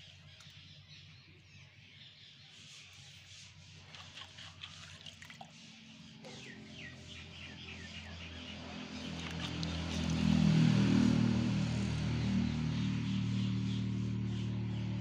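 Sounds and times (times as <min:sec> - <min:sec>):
birds chirping: 0:05.5 - 0:15.0.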